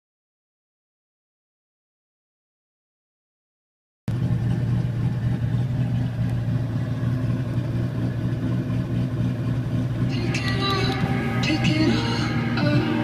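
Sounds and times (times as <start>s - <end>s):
car engine idling: 4.1s - 13.0s.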